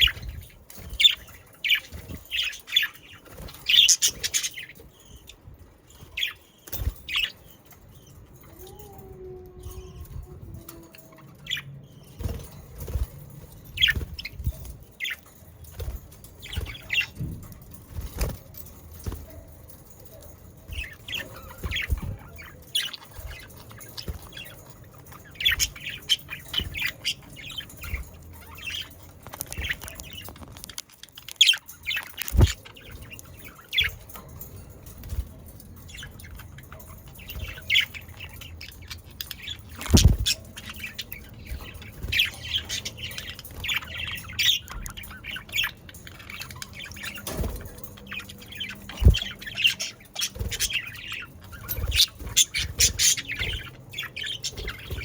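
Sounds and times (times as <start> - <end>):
budgerigars chattering and chirping: 0.0 - 5.4, 35.9 - 55.0.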